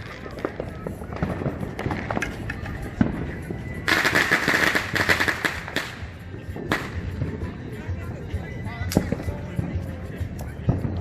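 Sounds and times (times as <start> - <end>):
fireworks pops and bangs: 0.0 - 7.4, 8.9 - 11.0
fireworks crackling: 0.0 - 7.6.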